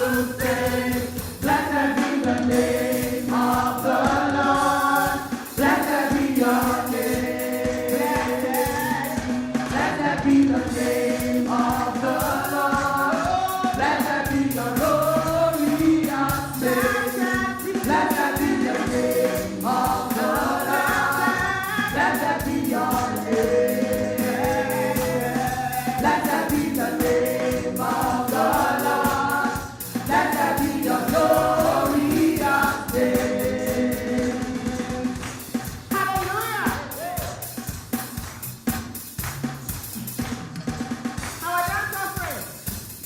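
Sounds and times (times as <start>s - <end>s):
gospel choir singing with band: 0.0s - 38.9s.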